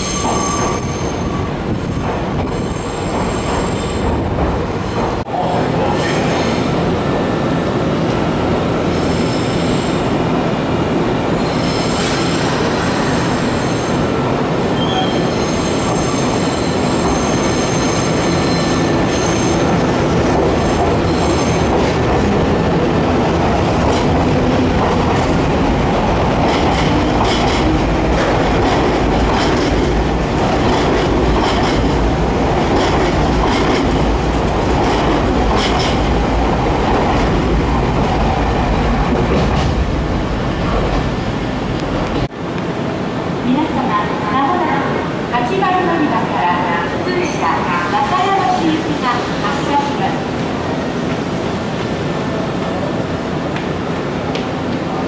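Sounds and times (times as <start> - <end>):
train rolling rumble: 0.0 - 55.0
high wheel squeals: 14.8 - 19.6.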